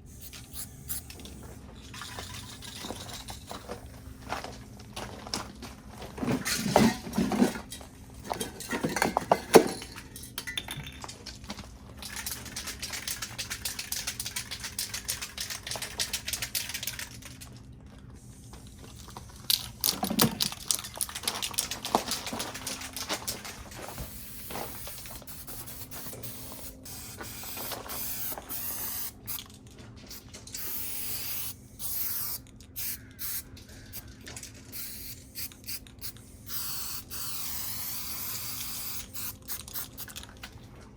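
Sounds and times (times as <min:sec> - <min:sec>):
spray paint cans hissing: 0:00.0 - 0:03.8, 0:12.0 - 0:17.4, 0:18.3 - 0:29.5, 0:30.1 - 0:40.4
spray can rattling: 0:00.1 - 0:03.7, 0:12.0 - 0:17.5, 0:19.3 - 0:33.4, 0:34.7 - 0:40.5.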